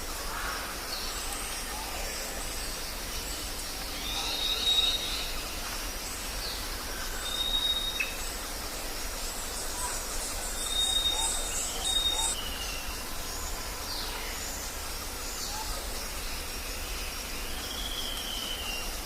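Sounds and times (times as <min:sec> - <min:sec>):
high background hiss: 0:00.0 - 0:19.0
whistled bird notes: 0:04.0 - 0:05.4, 0:07.2 - 0:08.2, 0:09.9 - 0:13.4, 0:17.5 - 0:19.0.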